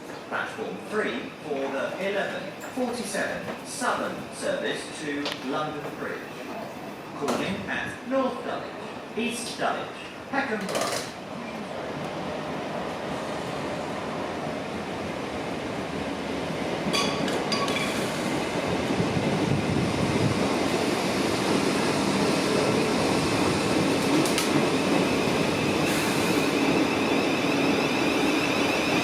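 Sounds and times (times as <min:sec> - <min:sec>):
electric train rumble: 0:11.8 - 0:29.0.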